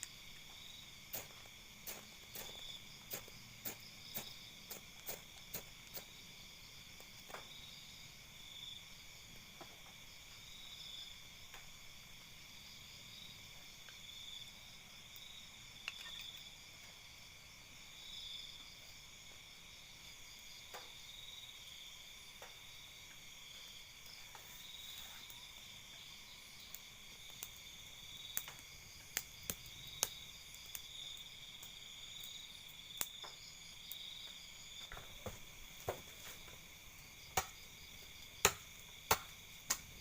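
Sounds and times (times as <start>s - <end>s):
crickets and insects trilling: 0.0s - 40.0s.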